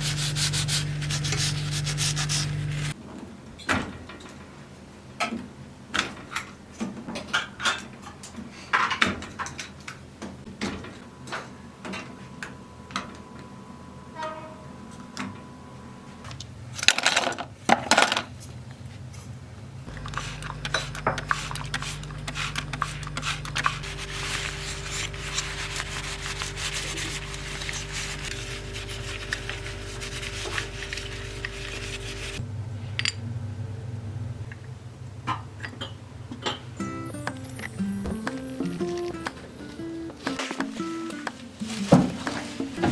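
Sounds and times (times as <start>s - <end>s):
small motor running: 0.0s - 3.0s, 19.9s - 32.4s.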